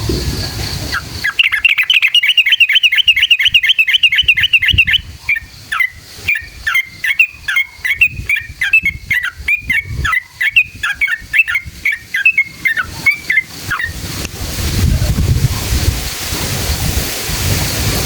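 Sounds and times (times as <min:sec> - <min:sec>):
bird singing bubbly chirps: 0:00.9 - 0:14.0
hiss: 0:12.5 - 0:18.0.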